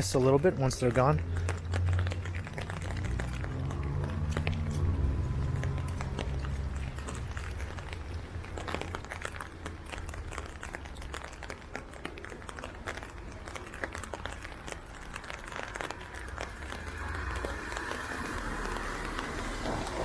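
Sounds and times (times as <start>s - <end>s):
rain falling: 0.0s - 20.0s
raindrop ticks: 0.0s - 20.0s
low rumble: 1.4s - 8.6s
tyres hissing on wet road: 2.7s - 8.1s, 14.8s - 20.0s.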